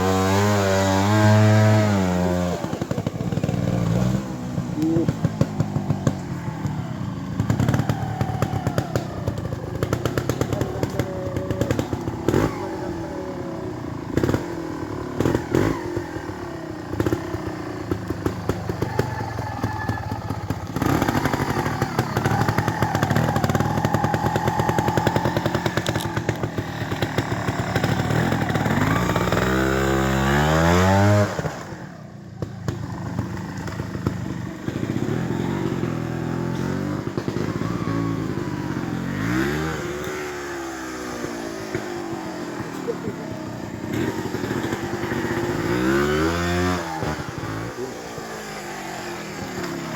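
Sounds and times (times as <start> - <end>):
motorcycle engine throttle blips: 1.0 - 30.2.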